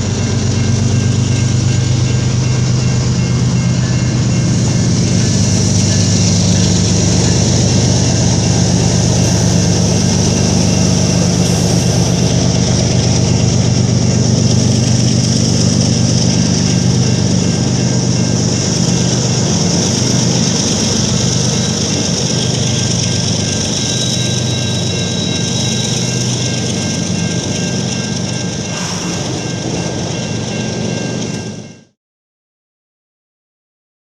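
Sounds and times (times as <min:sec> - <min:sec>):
diesel locomotive engine running: 0:00.0 - 0:32.0
hiss of rolling noise: 0:28.7 - 0:29.8.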